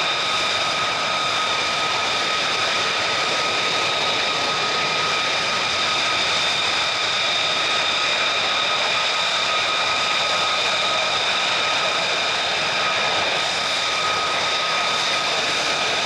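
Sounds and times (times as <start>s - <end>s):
jet engine whining: 0.0s - 16.0s.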